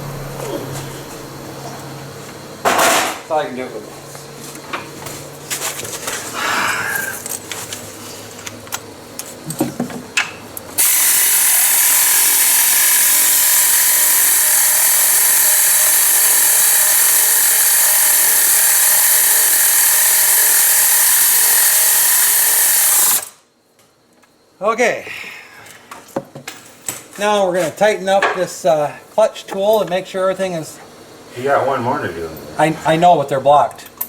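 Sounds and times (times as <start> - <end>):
power tool whirring: 10.8 - 23.4.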